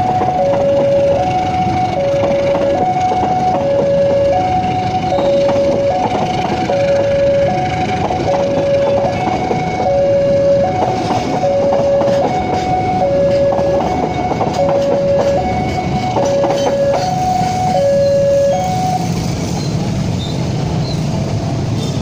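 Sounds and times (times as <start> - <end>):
train wheels clattering over rail joints: 0.0 - 18.2
two-note electronic signal: 0.0 - 19.4.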